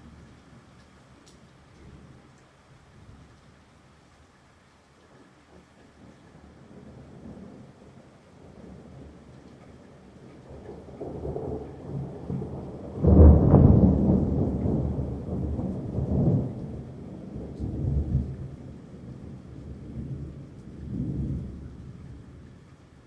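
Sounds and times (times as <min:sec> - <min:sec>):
thunder rumbling: 0:06.5 - 0:23.0.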